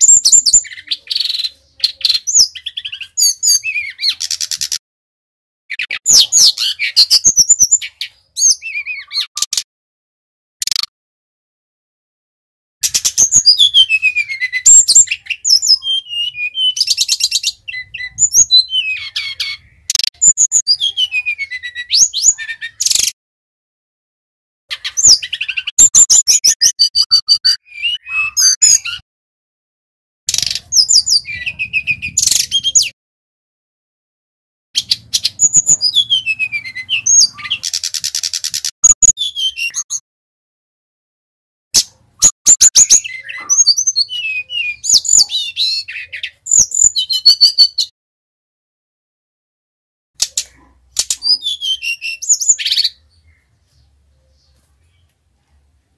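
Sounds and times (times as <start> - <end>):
bird singing whistled trills: 0.0 - 4.8, 5.7 - 9.5, 12.8 - 23.1, 24.7 - 29.0, 30.3 - 33.0, 34.8 - 40.0, 42.2 - 47.9, 51.0 - 53.5.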